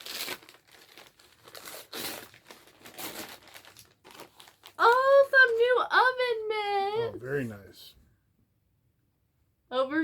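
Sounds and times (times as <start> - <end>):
wrapping paper crinkling and tearing: 0.0 - 5.3.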